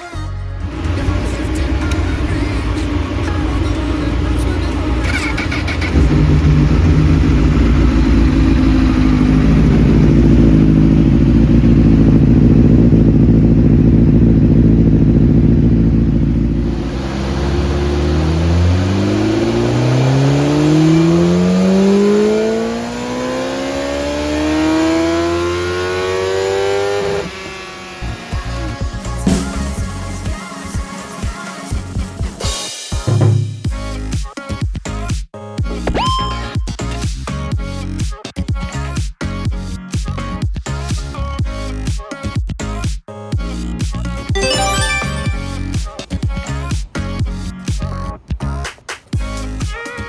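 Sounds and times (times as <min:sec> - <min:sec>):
motorcycle engine revving on dyno: 0:00.7 - 0:28.3.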